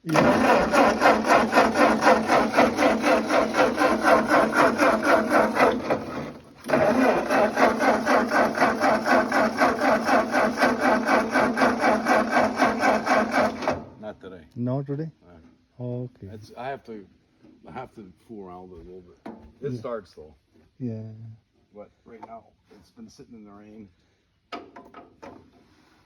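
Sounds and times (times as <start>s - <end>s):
tractor engine cranking: 0.0s - 14.0s.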